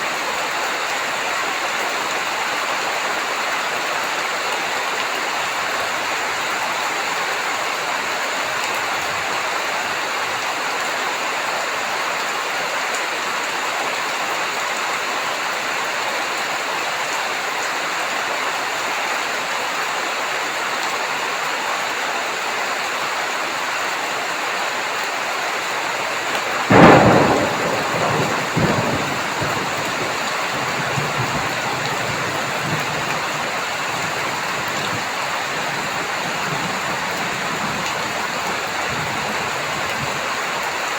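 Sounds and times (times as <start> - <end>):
heavy rain hissing: 23.2 - 40.9
thunderclap rumbling: 26.2 - 40.3.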